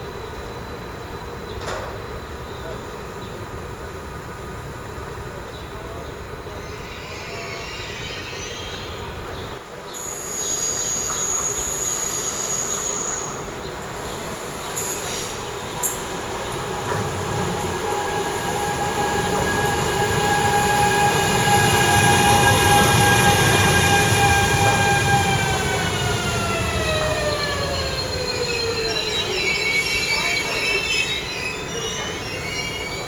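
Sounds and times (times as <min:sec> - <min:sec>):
electric train whine: 0:00.0 - 0:33.0
high squeals: 0:10.0 - 0:13.5, 0:14.4 - 0:33.0
wheels rumbling on track: 0:13.4 - 0:30.8.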